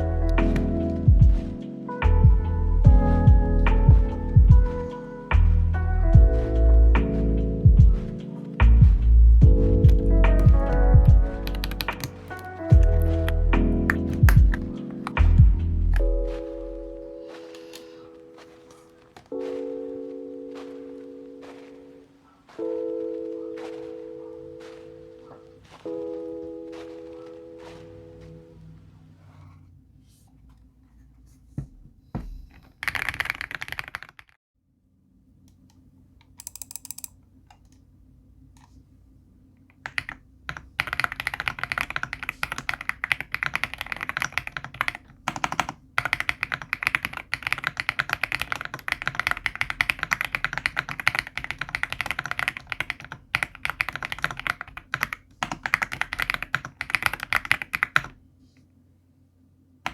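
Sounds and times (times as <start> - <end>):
mechanical keyboard typing: 9.8 - 16.0, 32.8 - 34.4, 36.4 - 37.8, 39.8 - 58.2.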